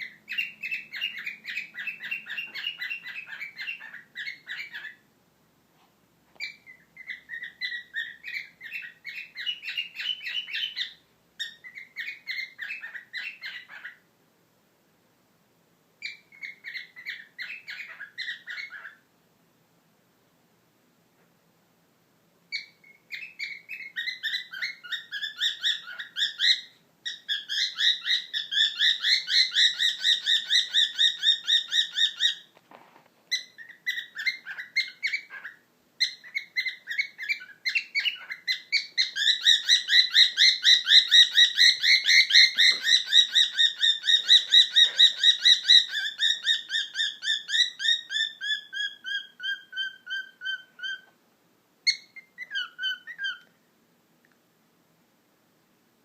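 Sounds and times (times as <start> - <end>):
cockatiel chirping: 0.0 - 5.0, 6.4 - 14.0, 16.0 - 19.0, 22.5 - 32.5, 33.3 - 51.2, 51.8 - 53.5.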